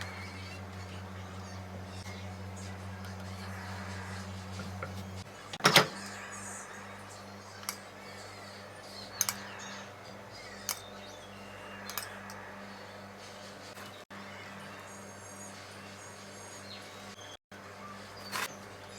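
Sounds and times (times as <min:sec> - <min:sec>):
steady low hum: 0:00.0 - 0:18.9
kitchen clicks and knocks: 0:04.6 - 0:06.0.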